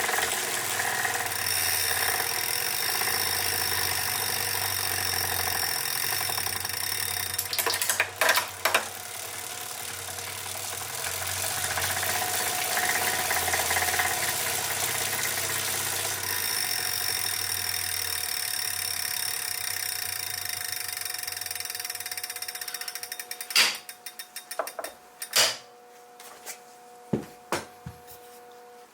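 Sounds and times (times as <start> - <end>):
mechanical knocks: 23.5 - 25.7.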